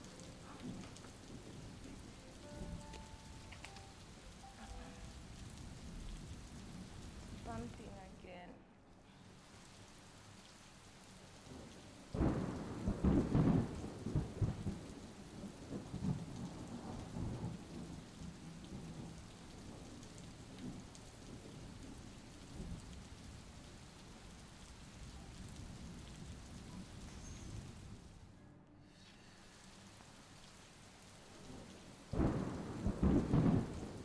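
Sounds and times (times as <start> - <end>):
thunder rumbling: 0.0 - 8.2, 11.5 - 24.2, 31.4 - 34.0
falling rain: 0.0 - 34.0.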